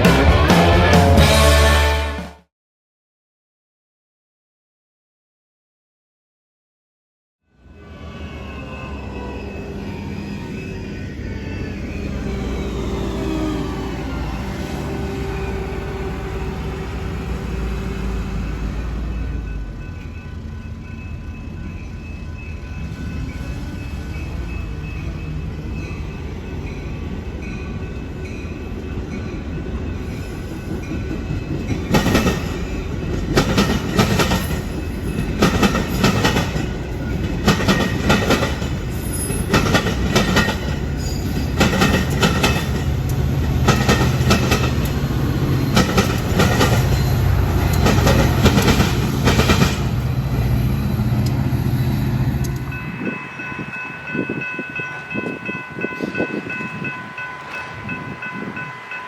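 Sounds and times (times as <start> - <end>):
train engine drone: 0.0 - 2.4, 7.4 - 59.0
train wheels clacking over rail joints: 30.0 - 51.5.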